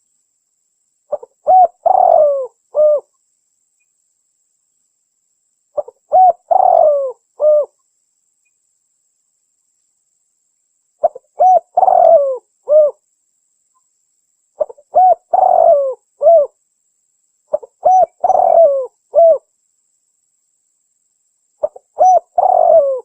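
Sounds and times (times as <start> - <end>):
dove cooing: 1.1 - 3.1, 5.8 - 7.8, 11.0 - 13.0, 14.6 - 16.6, 17.5 - 19.5, 21.6 - 23.0.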